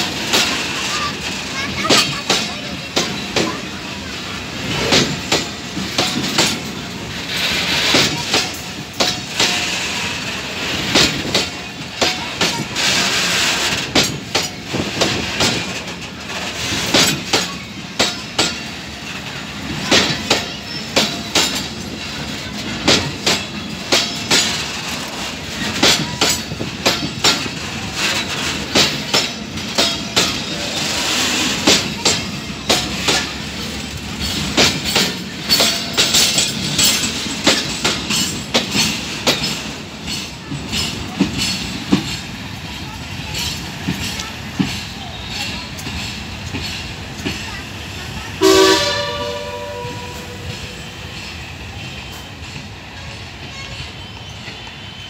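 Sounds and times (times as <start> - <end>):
train wheels clicking over rail joints: 0.0 - 54.9.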